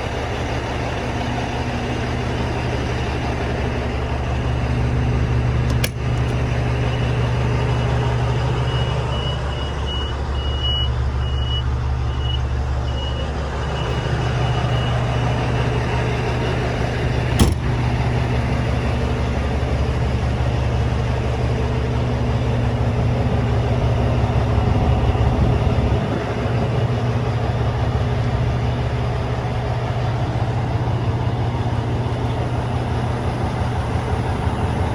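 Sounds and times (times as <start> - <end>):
diesel truck engine running: 0.0 - 34.9
reversing alarm beeping: 6.5 - 17.6.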